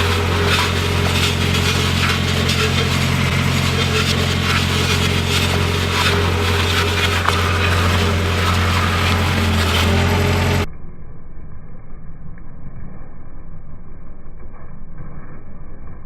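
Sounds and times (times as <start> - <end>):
crackling and crunching under roller: 0.0 - 10.7
road roller engine running: 0.0 - 10.7
muffled vehicle rumble: 0.0 - 16.0.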